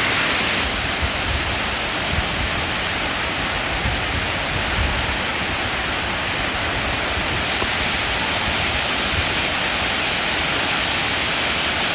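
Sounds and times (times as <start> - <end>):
waterfall roaring: 0.0 - 0.6
wind on microphone: 0.0 - 1.6.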